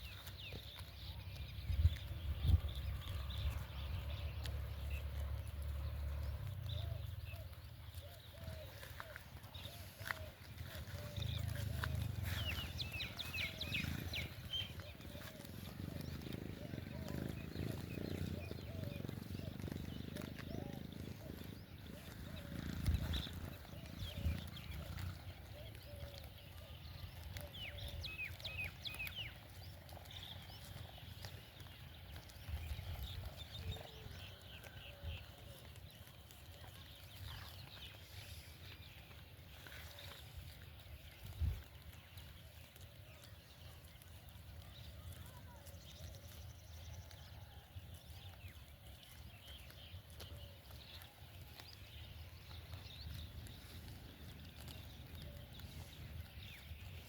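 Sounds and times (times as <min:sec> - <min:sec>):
small birds chirping: 0:00.0 - 0:57.0
low rumble: 0:01.3 - 0:25.4.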